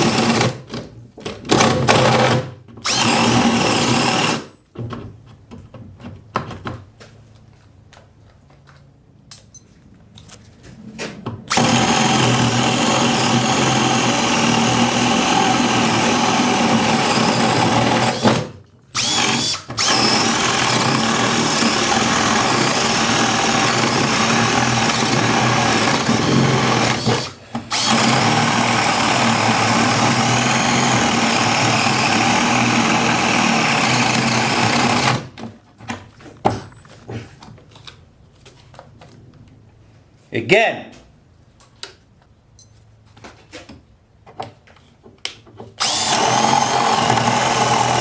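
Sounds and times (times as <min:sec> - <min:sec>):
power drill boring through wood: 0:00.0 - 0:00.7, 0:01.5 - 0:04.5, 0:11.5 - 0:35.4, 0:45.8 - 0:48.0.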